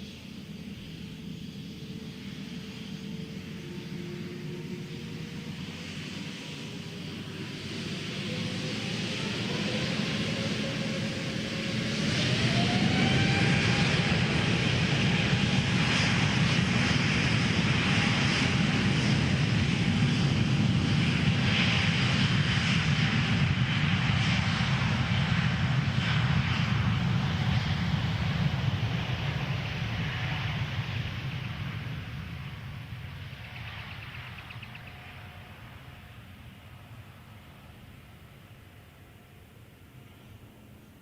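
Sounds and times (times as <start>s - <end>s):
jet engines spooling up: 0.0s - 40.9s.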